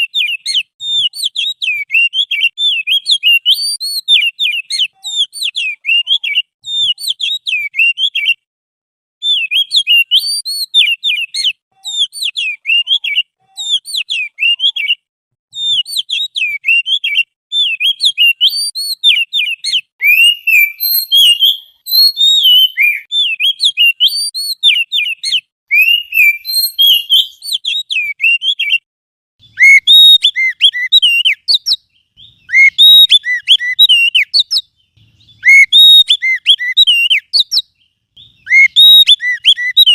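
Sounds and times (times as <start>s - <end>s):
songbird chirps and whistles: 0.0s - 8.4s, 9.2s - 39.9s.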